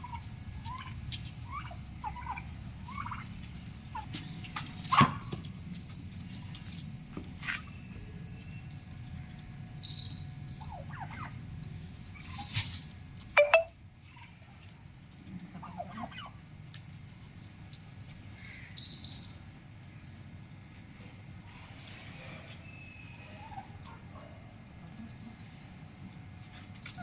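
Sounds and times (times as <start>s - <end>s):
turkey gobbling: 0.0s - 4.1s, 10.6s - 11.4s, 15.5s - 16.4s.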